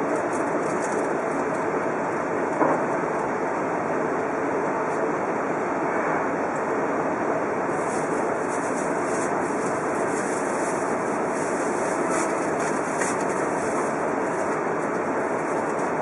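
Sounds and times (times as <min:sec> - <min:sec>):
train running rumble: 0:00.0 - 0:16.0.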